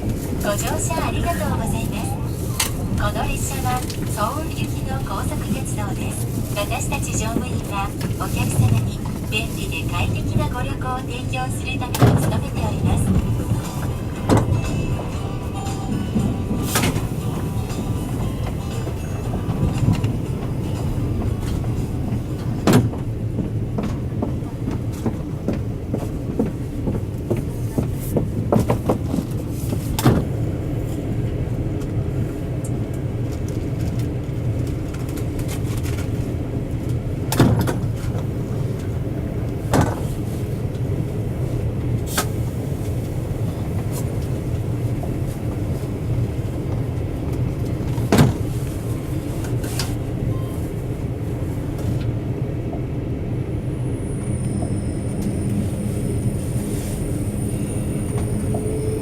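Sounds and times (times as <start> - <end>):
train interior rumble and hum: 0.0 - 59.0.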